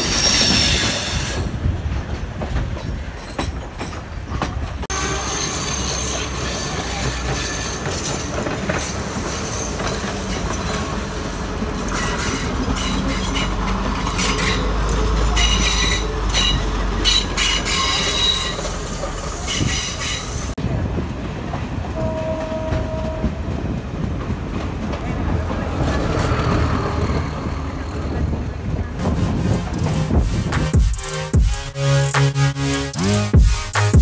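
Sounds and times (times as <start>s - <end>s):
high wheel squeals: 0.0s - 1.5s, 4.9s - 20.6s
train wheels clattering on rails: 0.0s - 31.4s.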